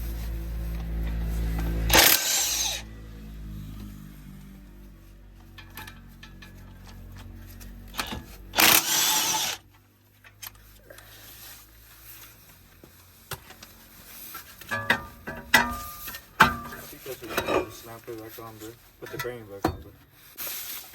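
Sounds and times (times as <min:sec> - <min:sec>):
clinking mechanic's tools: 0:01.1 - 0:02.8, 0:05.4 - 0:10.7, 0:14.3 - 0:20.0
power tool burst: 0:01.9 - 0:02.8, 0:08.5 - 0:09.6.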